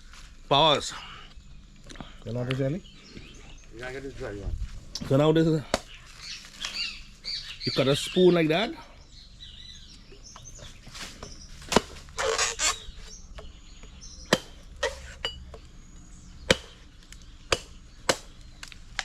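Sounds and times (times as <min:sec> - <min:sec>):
machete chopping coconut: 0:05.7 - 0:06.0, 0:11.2 - 0:12.8, 0:14.3 - 0:15.6, 0:16.4 - 0:16.9, 0:17.5 - 0:19.0.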